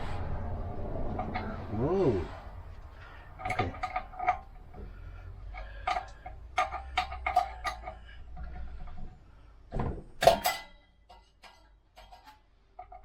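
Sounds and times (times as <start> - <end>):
metal tools clinking: 2.4 - 9.0, 10.2 - 13.0.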